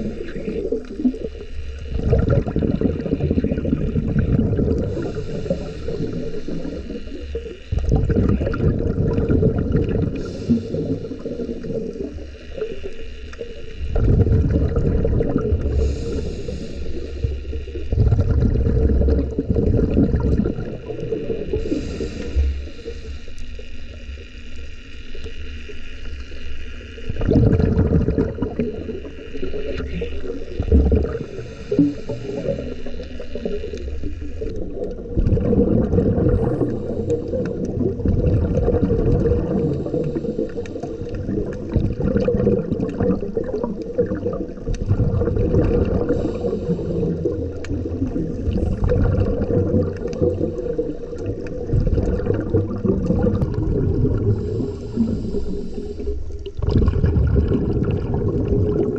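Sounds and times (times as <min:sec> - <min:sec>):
muffled underwater rushing water: 0:00.0 - 0:58.9.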